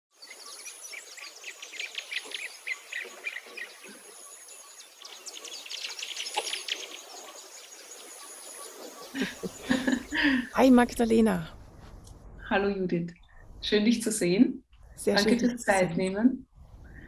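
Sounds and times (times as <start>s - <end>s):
birds chirping and singing: 0.2s - 11.2s.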